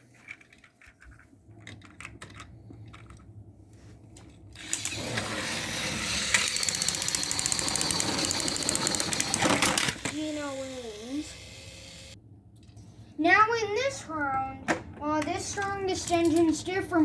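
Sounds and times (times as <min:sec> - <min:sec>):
toy train motors whirring: 0:04.6 - 0:12.2.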